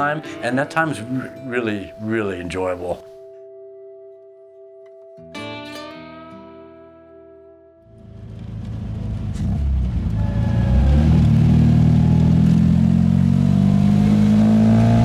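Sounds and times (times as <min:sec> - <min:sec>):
car engine driving: 0:07.9 - 0:15.0.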